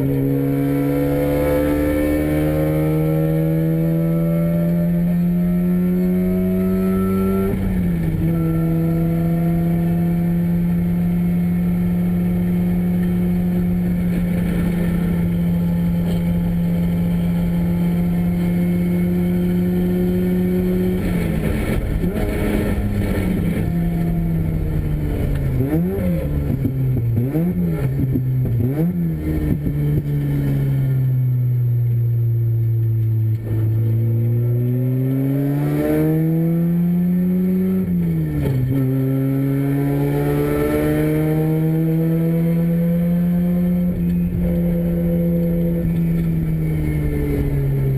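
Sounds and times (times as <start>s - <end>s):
engine throttle blips: 39.8s - 47.9s.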